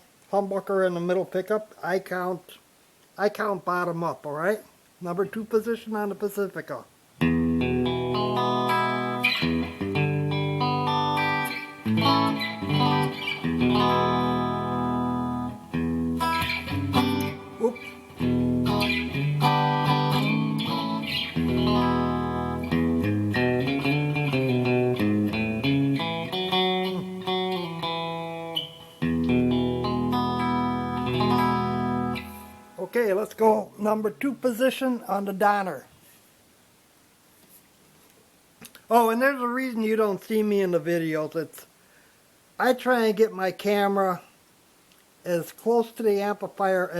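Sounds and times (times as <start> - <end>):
electric guitar chords ringing: 7.2 - 32.8.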